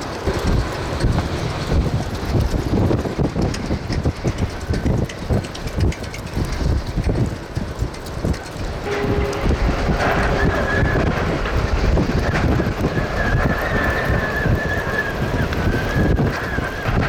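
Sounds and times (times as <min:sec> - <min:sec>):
gusting wind buffeting microphone: 0:00.0 - 0:17.0
wavering high whistle: 0:08.9 - 0:11.4, 0:12.2 - 0:16.9.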